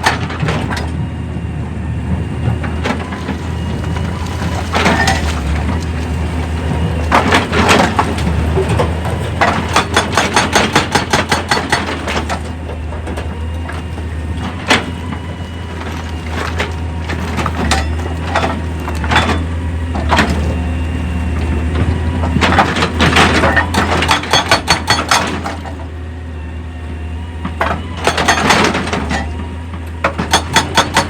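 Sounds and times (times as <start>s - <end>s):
low engine hum: 0.0s - 10.2s.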